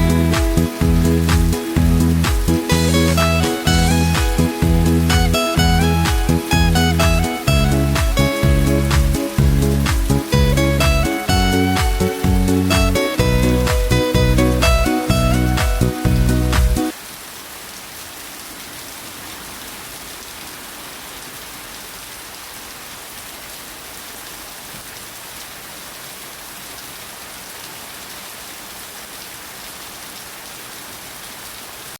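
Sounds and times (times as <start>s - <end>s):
music: 0.0s - 16.9s
steady rain falling: 0.0s - 31.9s.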